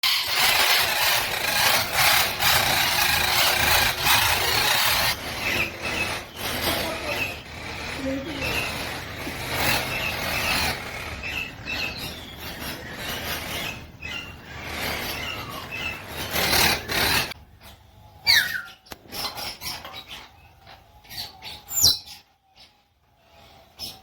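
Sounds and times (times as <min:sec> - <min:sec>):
parrots chattering and calling: 0:00.0 - 0:24.0.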